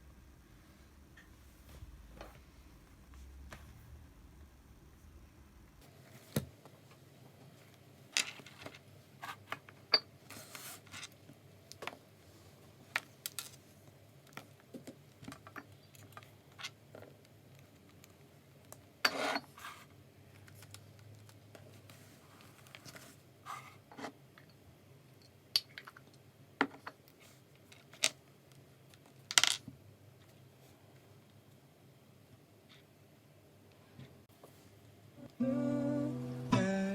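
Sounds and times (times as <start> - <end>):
small objects clicking and tapping: 14.2 - 18.8, 25.2 - 29.7.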